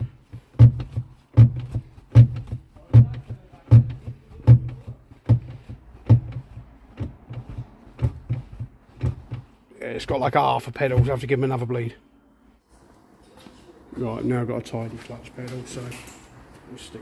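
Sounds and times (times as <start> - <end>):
clutch pedal click and knock: 0.0 - 9.5.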